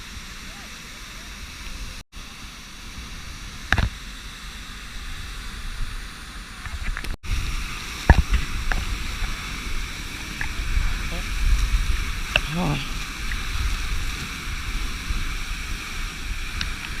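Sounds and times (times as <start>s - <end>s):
low wind rumble on microphone: 2.7s - 17.0s
waterfall rushing: 6.3s - 17.0s.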